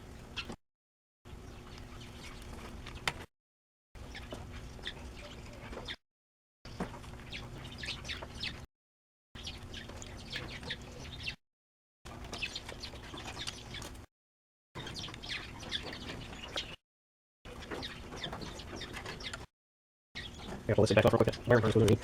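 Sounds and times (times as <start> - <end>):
birds chirping: 0.0 - 0.6, 1.3 - 3.3, 4.0 - 6.0, 6.7 - 8.7, 9.4 - 11.4, 12.1 - 14.1, 14.8 - 16.8, 17.5 - 19.5, 20.2 - 22.0.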